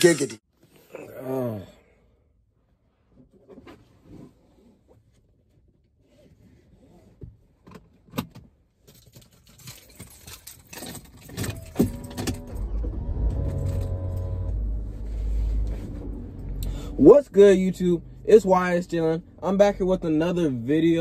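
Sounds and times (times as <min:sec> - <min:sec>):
car keys jangling: 0:08.8 - 0:14.2
car engine starting and running: 0:11.1 - 0:21.0.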